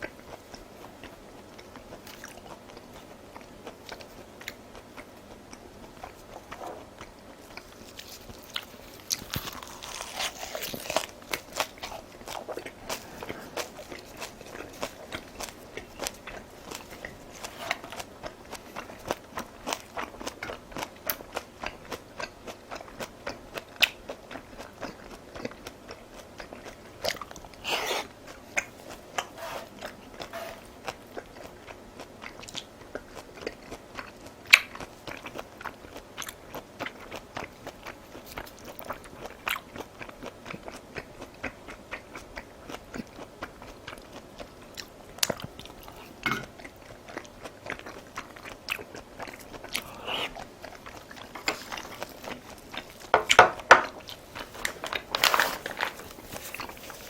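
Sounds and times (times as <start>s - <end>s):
chewing crunchy food: 0.0s - 57.0s
wet mouth clicks: 49.7s - 50.5s.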